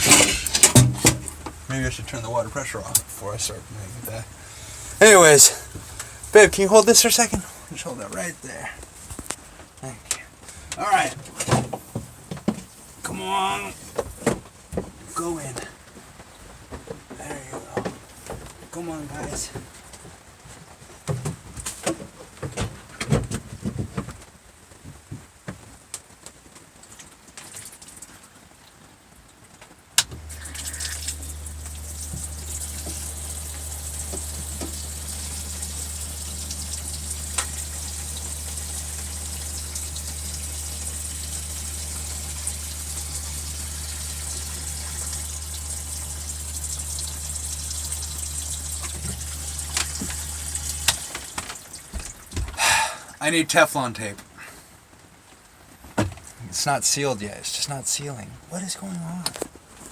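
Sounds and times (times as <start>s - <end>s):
water pump humming: 0.0s - 8.6s, 30.0s - 53.2s
water hissing from joint: 0.0s - 9.5s, 30.0s - 53.3s.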